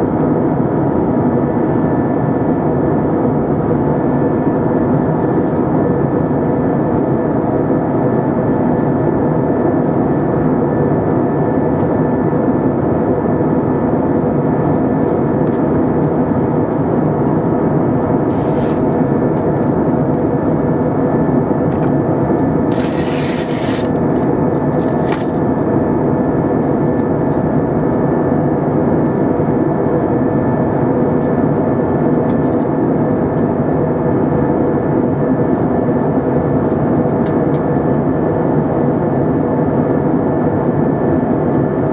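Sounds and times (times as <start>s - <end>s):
airplane cabin engine hum: 0.0s - 41.9s
cabin air noise: 17.8s - 20.0s, 21.6s - 25.7s.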